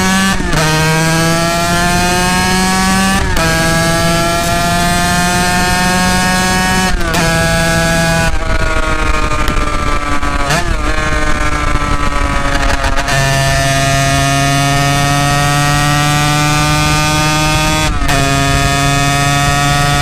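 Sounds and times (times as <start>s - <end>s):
two-stroke motorcycle accelerating: 0.0s - 20.0s.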